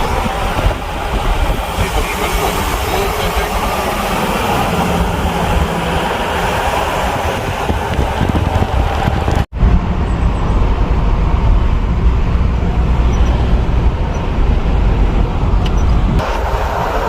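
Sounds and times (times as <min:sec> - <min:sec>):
road rumble inside a car: 0:07.3 - 0:17.0.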